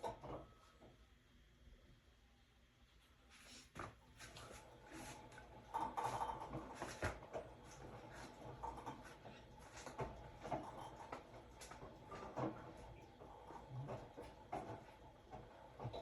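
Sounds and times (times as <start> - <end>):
washing machine drum turning: 4.7 - 16.0.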